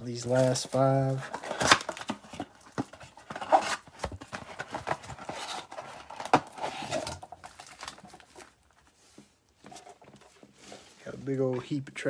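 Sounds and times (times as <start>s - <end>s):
cardboard and plastic tearing: 0.0s - 8.8s.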